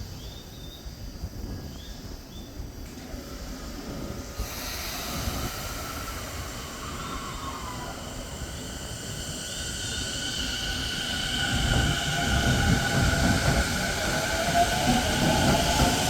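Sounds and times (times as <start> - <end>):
wind rumbling on microphone: 0.0 - 16.0
electric train wheel and rail noise: 0.1 - 16.0
hiss: 2.6 - 16.0
high squealing wheels: 3.6 - 16.0.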